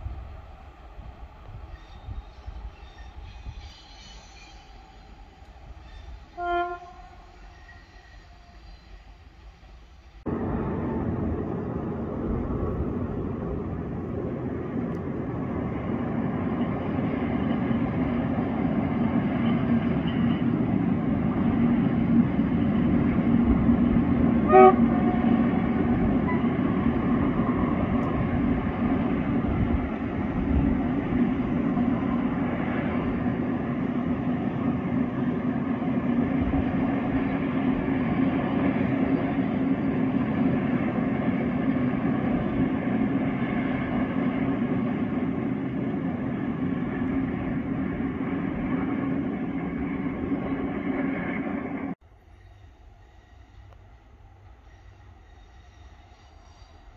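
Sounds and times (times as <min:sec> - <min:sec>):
train rumbling on track: 0:00.0 - 0:56.9
train horn toot: 0:05.9 - 0:09.1, 0:24.4 - 0:25.6, 0:26.2 - 0:26.6.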